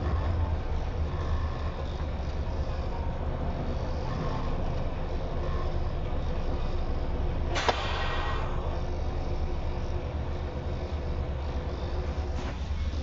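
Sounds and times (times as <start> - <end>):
road vehicle rumble: 0.0 - 13.0
sharp click: 7.6 - 8.0.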